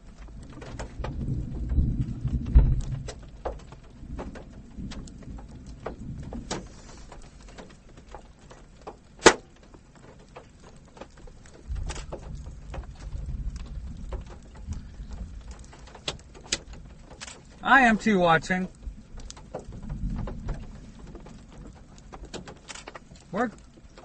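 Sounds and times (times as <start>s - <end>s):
low rumble: 0.0s - 7.6s, 11.6s - 18.0s
raindrops tapping on a car: 0.0s - 24.0s.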